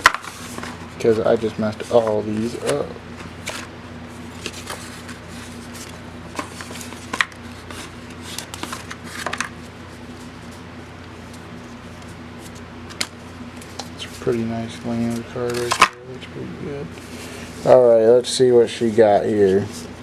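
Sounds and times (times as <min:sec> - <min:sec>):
steady low hum: 0:00.0 - 0:20.0
cards clicking and sliding: 0:04.4 - 0:10.3, 0:15.1 - 0:16.0.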